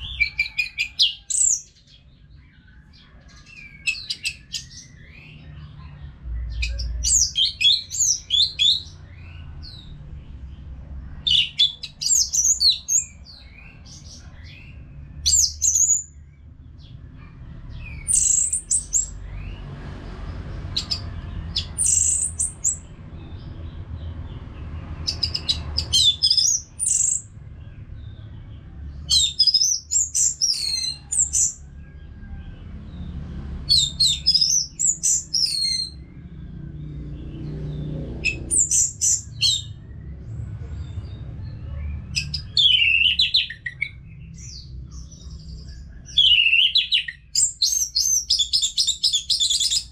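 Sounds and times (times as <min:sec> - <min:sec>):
bird whistling song: 0:11.2 - 0:16.2, 0:17.8 - 0:19.2, 0:20.8 - 0:22.8, 0:25.1 - 0:27.3, 0:29.1 - 0:31.6, 0:33.7 - 0:36.0, 0:38.2 - 0:39.8, 0:42.1 - 0:44.6, 0:45.8 - 0:49.9.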